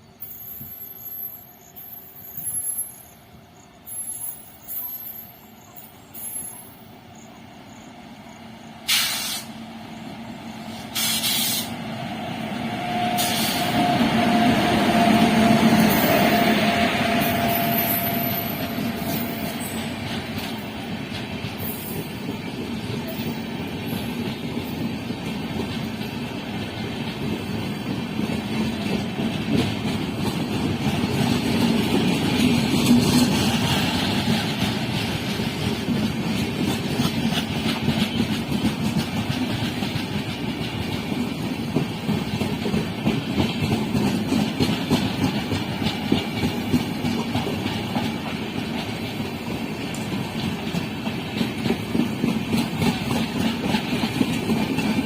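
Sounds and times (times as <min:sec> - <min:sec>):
train rumble approaching: 0:00.0 - 0:55.0
short hissing bursts: 0:08.8 - 0:09.6, 0:10.7 - 0:11.8, 0:13.2 - 0:13.7.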